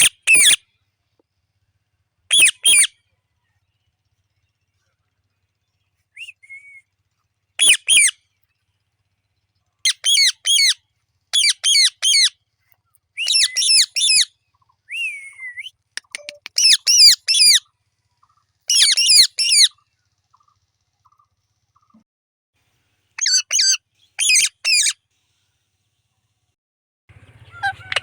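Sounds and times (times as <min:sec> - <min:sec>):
parrot squawking: 0:00.0 - 0:00.6, 0:02.3 - 0:02.9, 0:07.6 - 0:08.2, 0:09.9 - 0:10.8, 0:11.4 - 0:12.4, 0:13.2 - 0:14.3, 0:16.0 - 0:17.6, 0:18.7 - 0:19.7, 0:23.2 - 0:25.0, 0:27.4 - 0:28.0
parrot gliding call: 0:02.3 - 0:03.0, 0:05.3 - 0:08.2, 0:09.9 - 0:12.4, 0:13.2 - 0:22.0, 0:23.2 - 0:25.0, 0:27.2 - 0:28.0.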